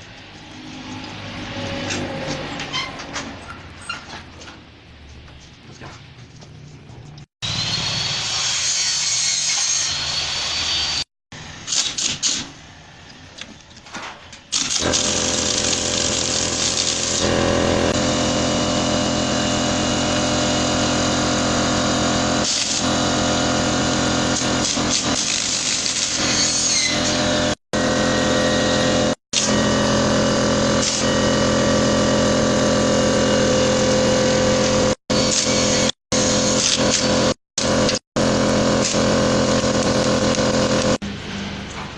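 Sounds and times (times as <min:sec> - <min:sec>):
motor-driven machine running: 0:26.9 - 0:41.0.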